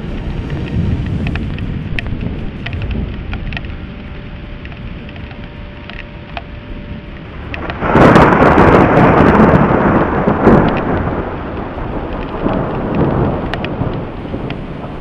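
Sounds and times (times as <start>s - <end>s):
raindrops ticking: 0.0s - 15.0s
steady rain: 0.0s - 15.0s
thunder rumbling: 0.0s - 15.0s.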